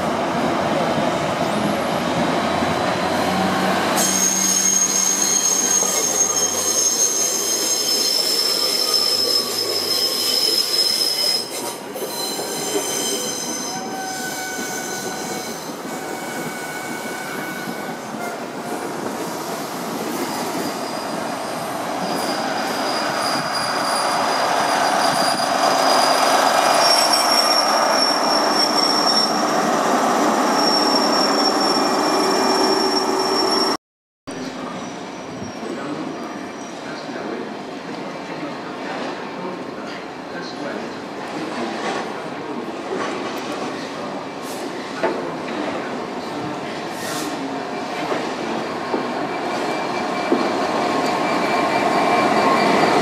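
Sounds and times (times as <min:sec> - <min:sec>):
high-pitched wheel squeals: 0:04.0 - 0:18.4, 0:20.2 - 0:33.8.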